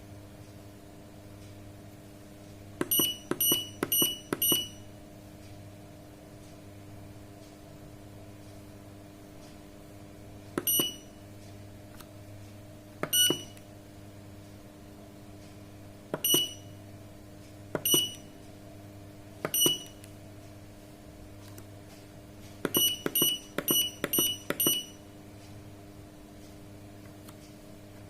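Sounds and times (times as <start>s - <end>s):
low electrical hum: 0.0s - 28.0s
controller button beeps: 2.8s - 4.8s, 10.6s - 11.1s, 13.0s - 13.6s, 16.2s - 16.6s, 17.8s - 18.2s, 19.5s - 20.0s, 22.7s - 25.0s.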